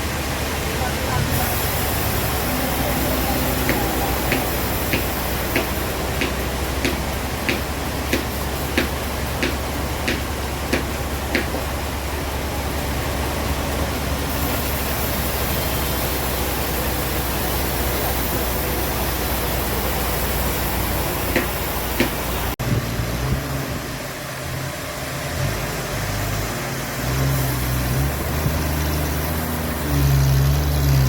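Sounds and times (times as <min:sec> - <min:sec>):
sawmill machinery humming: 0:00.0 - 0:31.0
regular ticking: 0:01.7 - 0:14.3.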